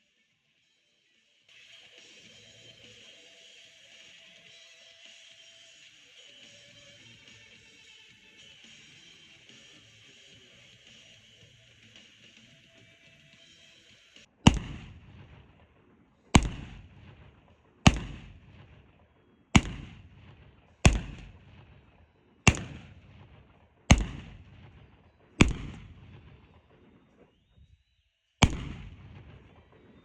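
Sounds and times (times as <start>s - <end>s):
gunshots: 14.3s - 27.5s, 28.4s - 30.0s.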